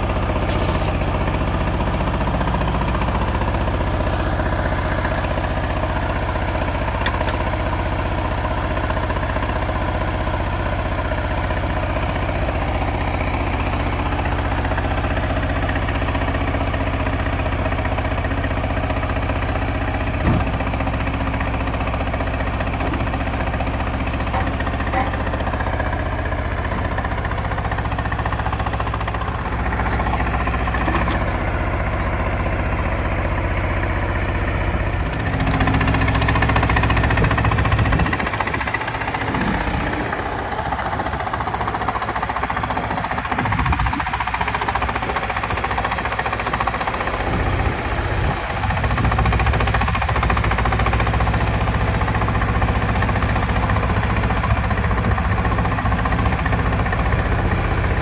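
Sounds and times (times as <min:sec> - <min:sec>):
diesel truck engine rattling: 0:00.0 - 0:58.0.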